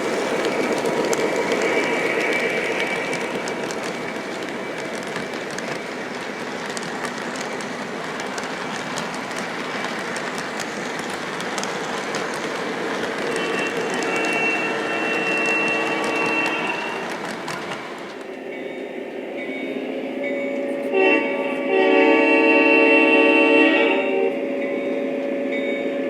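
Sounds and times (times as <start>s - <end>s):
model train wheels clattering: 0.0s - 18.4s.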